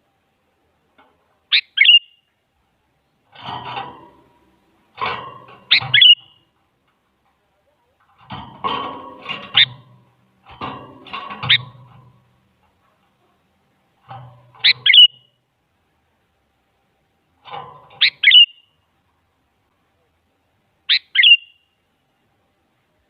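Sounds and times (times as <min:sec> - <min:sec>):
bird chattering calls: 0:01.5 - 0:02.1, 0:05.7 - 0:06.4, 0:14.6 - 0:15.3, 0:18.0 - 0:18.6, 0:20.9 - 0:21.6
bulbul chirping: 0:01.5 - 0:02.2, 0:05.7 - 0:06.4, 0:14.6 - 0:15.4, 0:18.0 - 0:18.7, 0:20.9 - 0:21.6.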